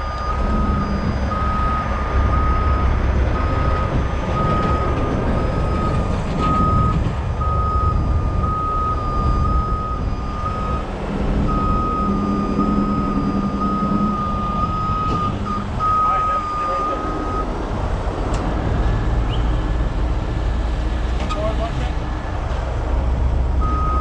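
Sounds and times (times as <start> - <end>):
reversing alarm beeping: 0.0 - 17.6, 23.6 - 24.0
diesel truck engine running: 0.0 - 24.0.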